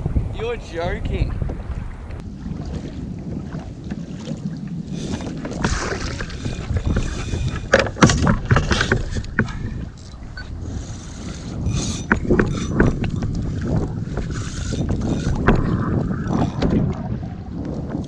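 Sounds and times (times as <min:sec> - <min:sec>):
water noise: 0:00.0 - 0:18.0
wind buffeting microphone: 0:00.0 - 0:18.0
sharp splashy knocks: 0:05.2 - 0:09.6.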